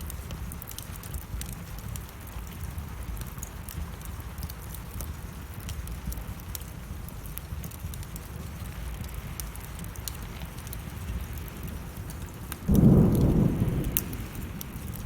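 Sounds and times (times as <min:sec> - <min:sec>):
steady rain: 0:00.0 - 0:15.0
wood fire crackling: 0:00.0 - 0:15.0
thunder clap rumbling: 0:11.0 - 0:15.0.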